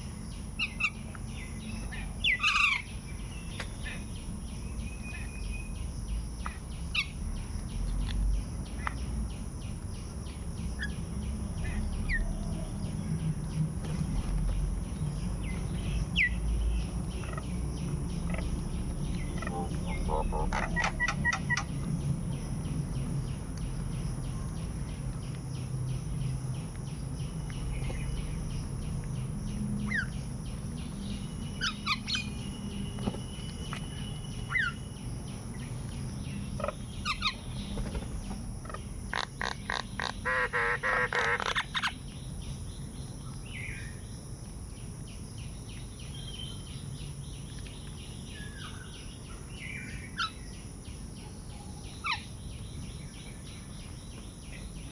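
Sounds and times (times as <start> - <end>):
birds chirping: 0.0 - 7.8, 8.4 - 44.1.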